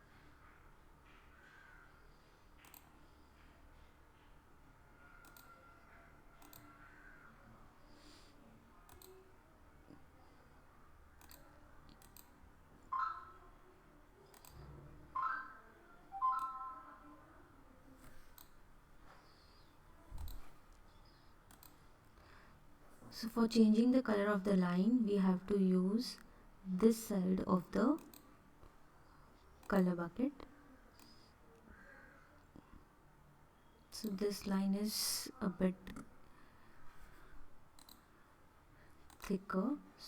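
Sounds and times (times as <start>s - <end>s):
computer mouse clicks: 2.6s - 3.1s, 5.1s - 5.7s, 6.4s - 7.2s, 8.9s - 9.2s, 11.2s - 12.4s, 14.2s - 14.8s, 18.1s - 18.6s, 20.2s - 21.9s, 27.9s - 28.3s, 37.7s - 38.1s, 39.0s - 39.5s.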